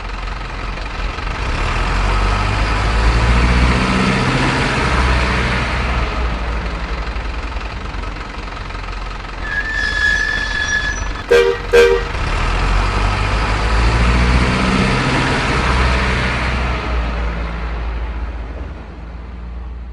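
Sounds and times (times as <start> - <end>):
short horn toots: 9.4 - 12.2.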